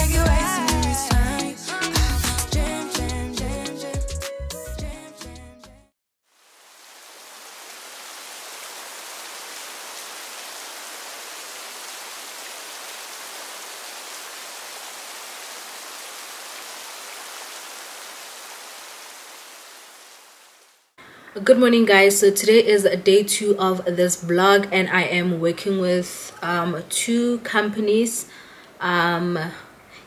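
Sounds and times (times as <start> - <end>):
steady rain: 6.2 - 21.0.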